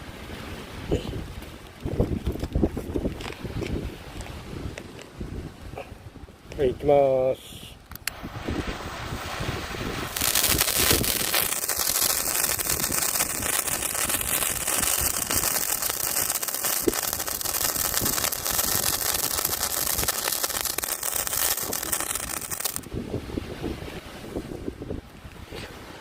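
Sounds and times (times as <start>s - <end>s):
firework hissing and crackling: 8.4s - 22.9s.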